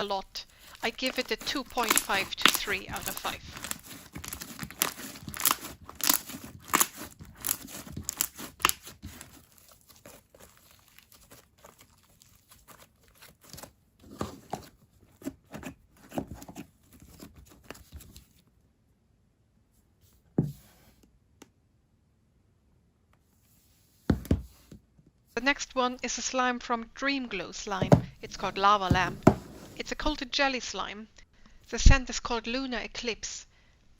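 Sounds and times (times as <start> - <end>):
slime squished by hand: 1.2 - 13.7.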